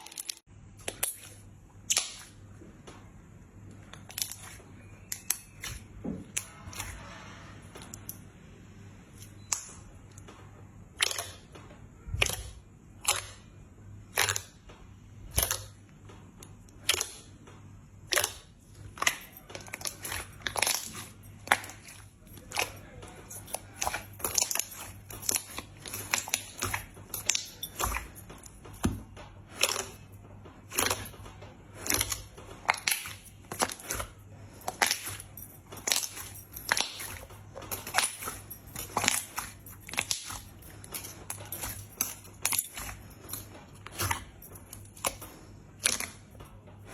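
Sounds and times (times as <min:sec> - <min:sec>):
crunchy slime crackling: 0:10.9 - 0:14.7, 0:16.7 - 0:17.4, 0:18.0 - 0:46.9.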